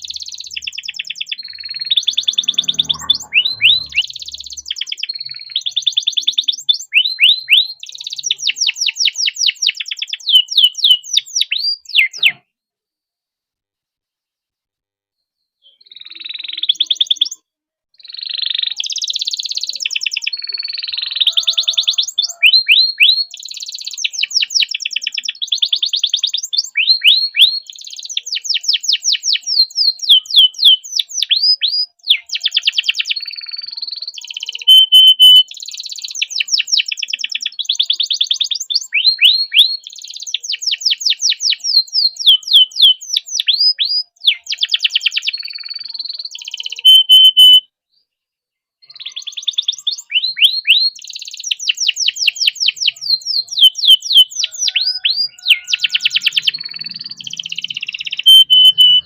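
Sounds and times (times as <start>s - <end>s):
canary singing trills: 0.0s - 12.4s, 15.6s - 17.4s, 18.0s - 47.6s, 48.8s - 59.0s
short steady whistle: 58.3s - 59.0s.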